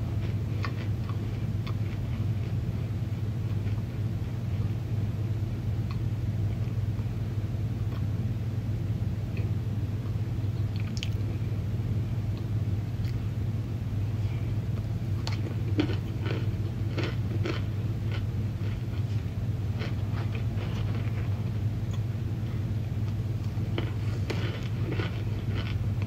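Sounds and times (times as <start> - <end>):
steady low hum: 0.0 - 26.0
chewing clicks and crunches: 0.2 - 2.6, 10.6 - 11.2, 12.4 - 13.2, 15.2 - 19.1, 19.8 - 21.3, 23.0 - 26.0.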